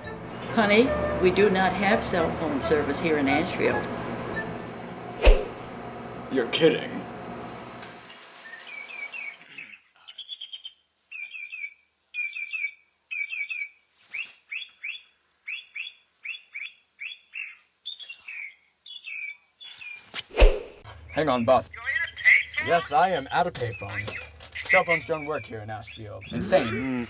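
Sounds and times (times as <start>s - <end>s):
bird chirping: 8.4s - 20.1s, 20.9s - 27.0s.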